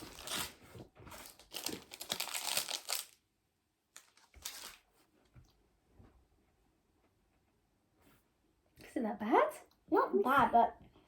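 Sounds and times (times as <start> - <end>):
wrapper crinkling and tearing: 0.0 - 3.2, 3.9 - 4.9.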